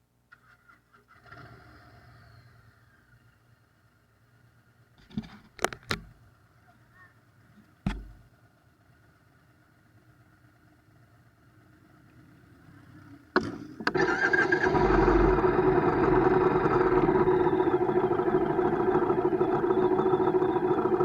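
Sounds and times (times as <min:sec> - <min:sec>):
motorcycle engine starting and running: 0:00.3 - 0:03.1, 0:13.4 - 0:21.0.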